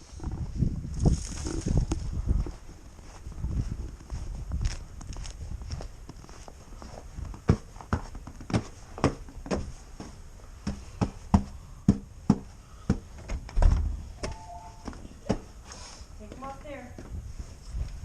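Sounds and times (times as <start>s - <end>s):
footsteps: 0.0s - 18.0s
heavy low thump: 13.4s - 14.2s.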